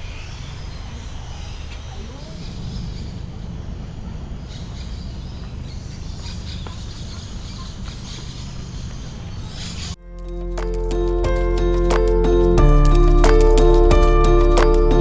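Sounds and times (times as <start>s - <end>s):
music with ringing notes: 10.0s - 15.0s.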